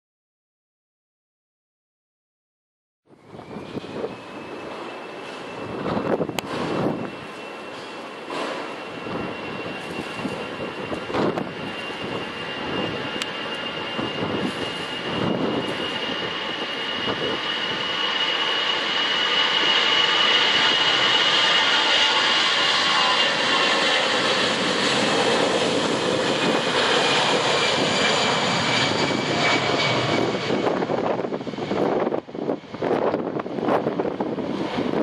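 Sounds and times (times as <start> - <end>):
high fan whine: 3.1 - 17.9
jet engine roar: 3.1 - 35.0.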